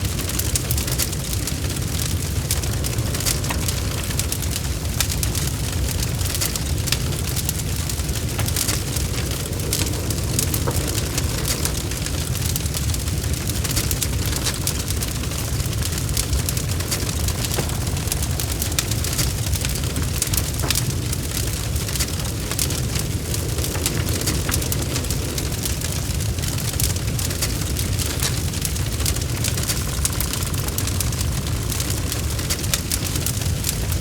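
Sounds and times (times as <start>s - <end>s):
logs crackling and popping: 0.0s - 34.0s
low rumble of flames: 0.0s - 34.0s.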